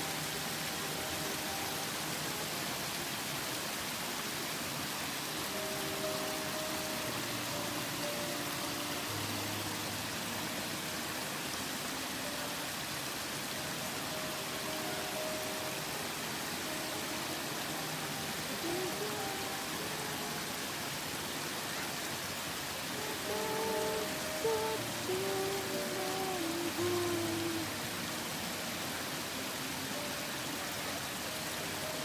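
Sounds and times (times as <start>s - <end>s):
faint held musical tones: 0.0s - 32.0s
waterfall roaring: 0.0s - 32.0s.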